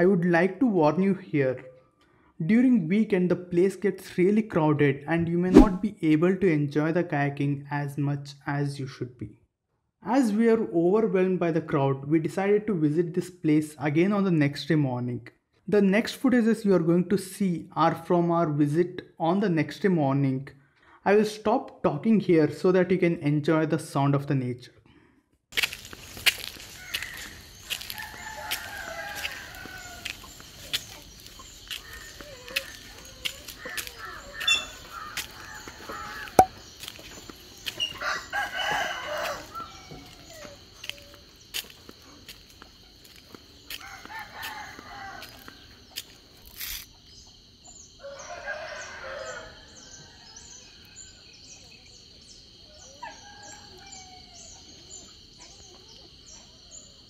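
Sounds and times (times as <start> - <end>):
small birds chirping: 25.6 - 49.0, 49.7 - 57.0
rooster crowing: 26.7 - 30.3, 33.6 - 36.5, 37.8 - 40.6, 43.7 - 45.7, 48.0 - 50.8.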